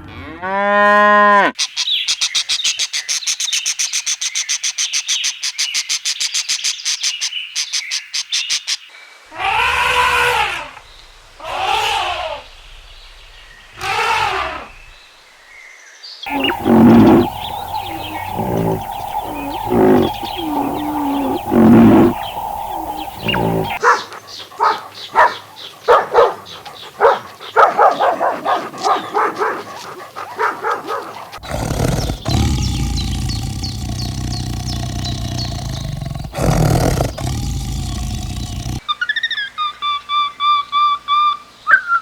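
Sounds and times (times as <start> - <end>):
low rough roar-like call: 16.3 - 23.8, 31.3 - 38.9
fast short animal calls: 16.3 - 38.8
loud pitched animal calls: 16.3 - 38.8.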